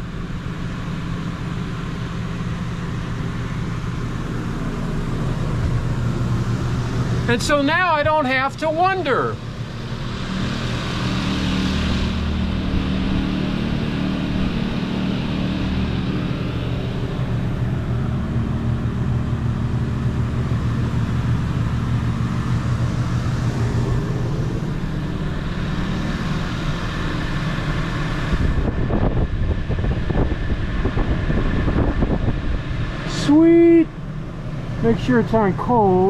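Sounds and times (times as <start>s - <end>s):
air conditioner running: 0.0s - 36.0s
generator engine hum: 0.0s - 36.0s.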